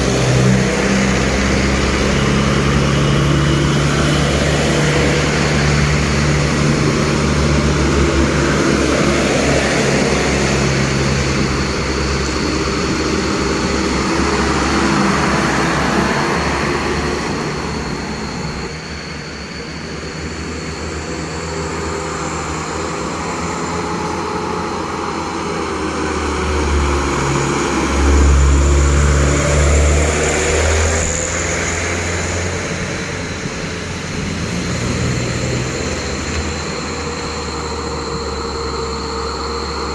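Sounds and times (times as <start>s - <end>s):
diesel trucks driving past: 0.0s - 39.9s.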